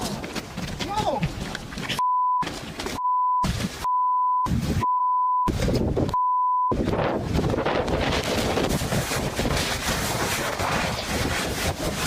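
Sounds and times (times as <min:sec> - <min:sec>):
noisy outdoor audio: 0:00.0 - 0:12.0
censor bleep tone: 0:02.0 - 0:02.4, 0:03.0 - 0:05.5, 0:06.1 - 0:06.8.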